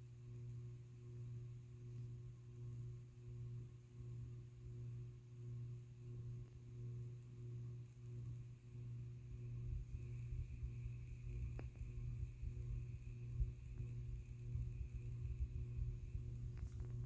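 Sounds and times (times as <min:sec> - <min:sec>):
ceiling fan motor humming: 0:00.0 - 0:17.0.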